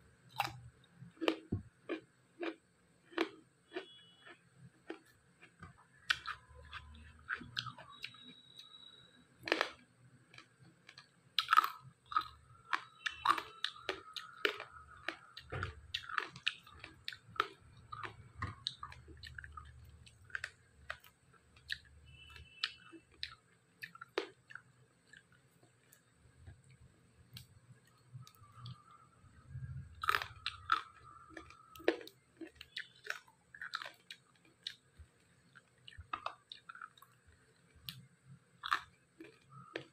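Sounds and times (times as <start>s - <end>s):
person crunching and chewing food: 0.2s - 39.9s.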